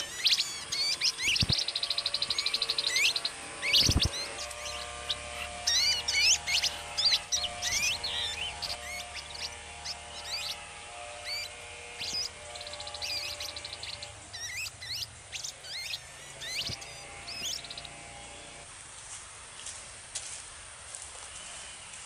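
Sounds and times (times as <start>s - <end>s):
songbird whistled chirps: 0.0s - 10.6s, 11.2s - 18.0s
bird rattling trill: 0.0s - 18.1s.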